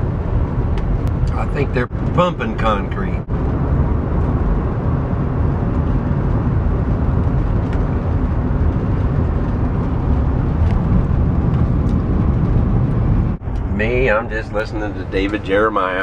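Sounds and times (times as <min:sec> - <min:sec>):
low vehicle rumble: 0:00.0 - 0:16.0.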